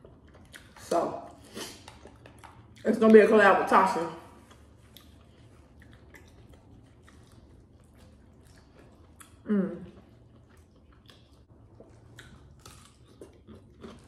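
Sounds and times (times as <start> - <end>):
soft chewing: 0.0 - 3.3, 4.0 - 14.0
person humming: 9.5 - 9.9.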